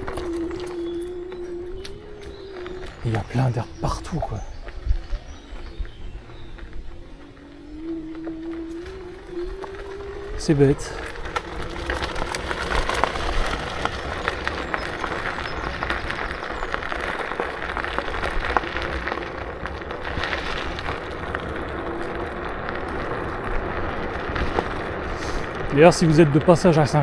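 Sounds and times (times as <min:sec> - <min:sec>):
faint steady whine: 0:00.0 - 0:25.7
tyre and wind noise: 0:00.0 - 0:27.0.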